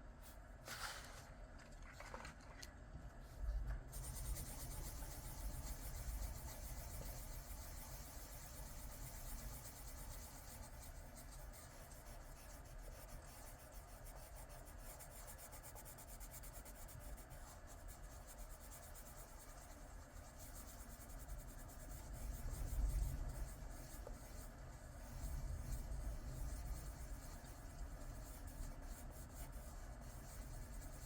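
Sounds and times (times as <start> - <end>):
hand and paper handling sounds: 0.2 - 3.6
pencil scratching on paper: 3.9 - 31.0.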